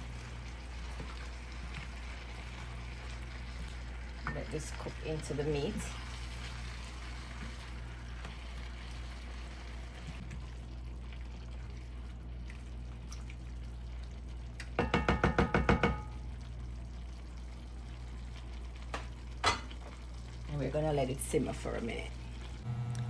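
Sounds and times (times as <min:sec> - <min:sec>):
food bubbling and sizzling: 0:00.0 - 0:23.0
low hum: 0:22.2 - 0:23.0.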